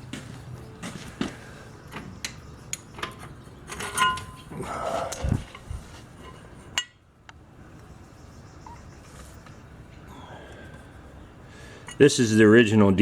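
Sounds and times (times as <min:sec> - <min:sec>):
metal parts clicking and clinking: 0:02.2 - 0:04.5.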